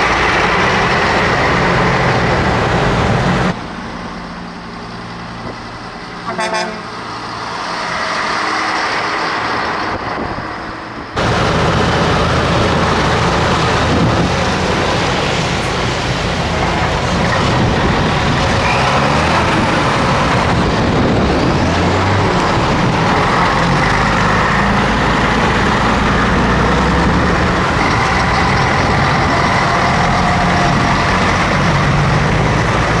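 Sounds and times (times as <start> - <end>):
truck diesel engine drone: 0.0 - 33.0.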